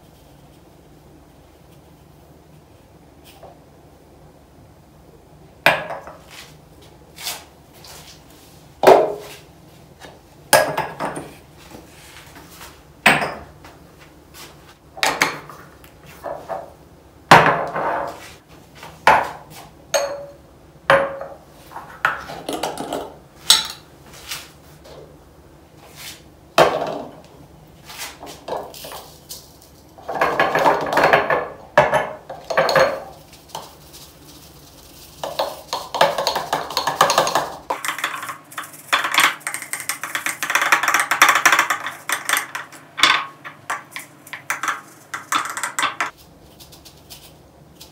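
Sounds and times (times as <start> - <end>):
jars knocking and clinking: 30.0 - 33.7, 35.2 - 46.1.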